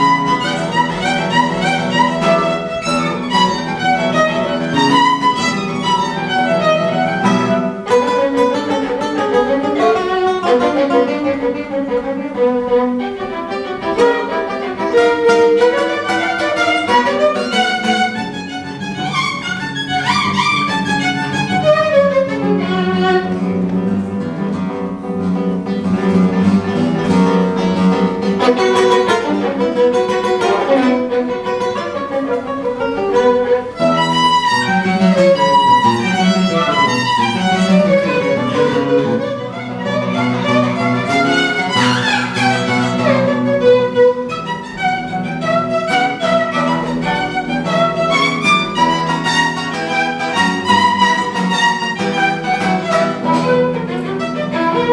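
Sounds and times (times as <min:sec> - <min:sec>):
guitar accompaniment: 0:00.0 - 0:54.9
violin folk melody: 0:00.0 - 0:54.9.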